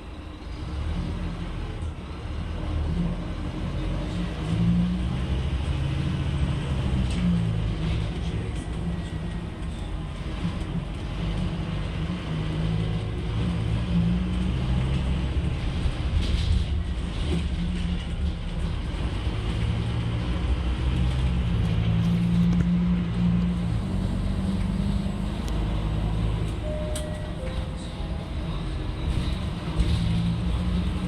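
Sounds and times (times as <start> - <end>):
bus diesel engine running: 0.0 - 31.0
road noise: 0.0 - 31.0.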